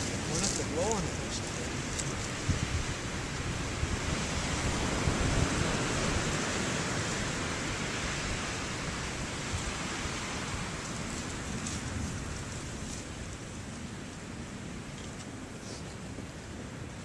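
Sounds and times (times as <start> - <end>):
strong wind rushing: 0.0 - 12.5
wind buffeting microphone: 0.0 - 17.0.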